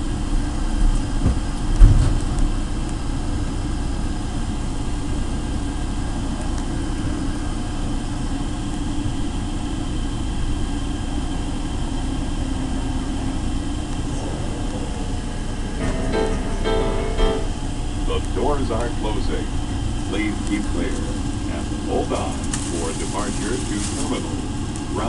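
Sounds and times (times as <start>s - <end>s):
train running through tunnel: 0.0s - 25.0s
thump: 1.2s - 2.2s.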